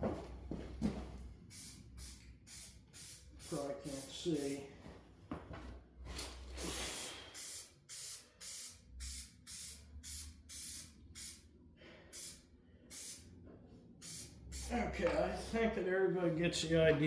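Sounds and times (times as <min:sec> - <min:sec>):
spray paint hissing in bursts: 0:01.4 - 0:04.6, 0:06.6 - 0:11.5, 0:12.1 - 0:13.3, 0:14.0 - 0:14.9.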